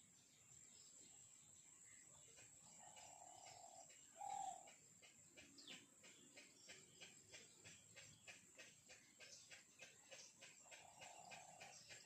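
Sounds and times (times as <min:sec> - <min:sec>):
faint bird calls: 0:01.8 - 0:12.0
faint rapid ticking: 0:02.4 - 0:12.0.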